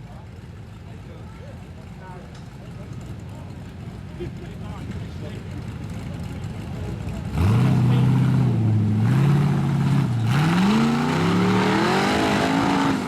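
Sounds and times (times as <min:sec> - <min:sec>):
buggy engine revving hard: 0:05.8 - 0:13.0.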